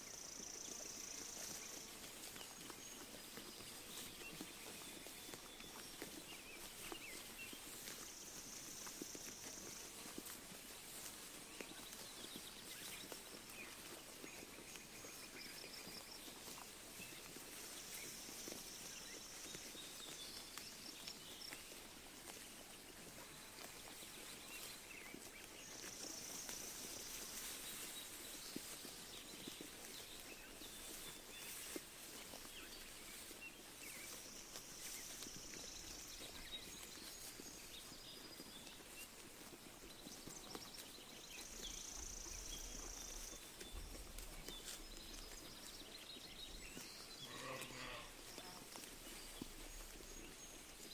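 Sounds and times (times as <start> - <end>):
sheep tearing and chewing grass: 0.0 - 50.9
birds chirping: 39.9 - 50.9.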